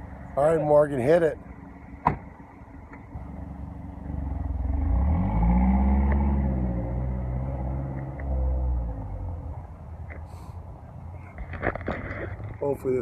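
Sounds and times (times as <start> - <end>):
car engine accelerating hard: 3.2 - 9.5.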